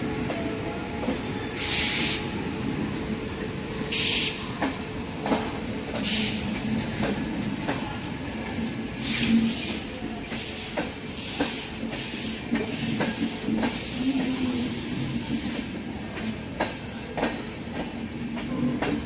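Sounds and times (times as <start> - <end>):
train low rumble: 0.0 - 19.0
loud bursts of hiss: 1.6 - 2.4, 3.9 - 4.5, 9.0 - 15.3.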